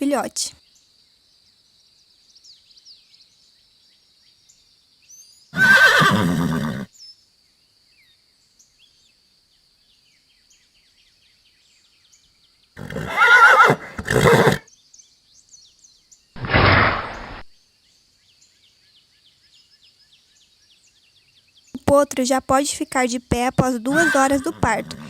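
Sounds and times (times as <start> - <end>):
horse whinnying: 5.6 - 6.9, 12.8 - 14.6, 23.9 - 25.0.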